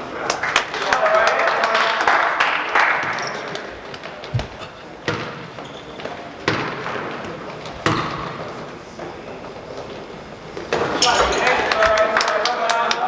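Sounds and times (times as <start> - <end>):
basketball bouncing on gym floor: 4.3 - 8.5.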